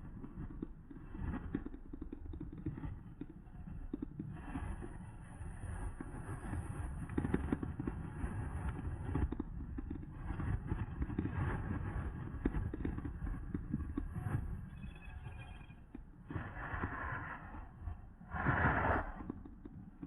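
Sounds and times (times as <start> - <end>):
wind buffeting microphone: 16.3 - 19.4.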